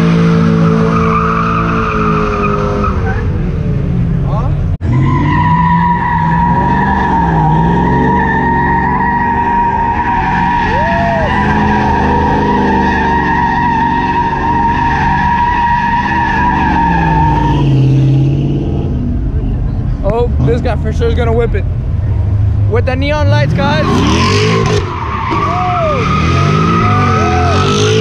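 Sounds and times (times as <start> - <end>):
car engine at high revs: 21.9 - 28.0.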